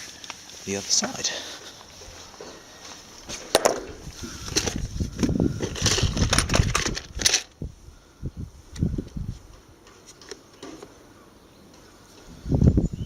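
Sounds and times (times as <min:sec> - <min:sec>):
rustling handling noise: 0:00.0 - 0:07.6
sharp clicks and knocks: 0:03.3 - 0:07.5.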